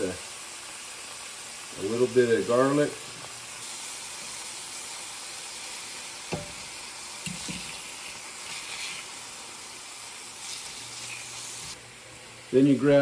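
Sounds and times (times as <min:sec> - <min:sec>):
meat sizzling in frying pan: 0:00.0 - 0:13.0.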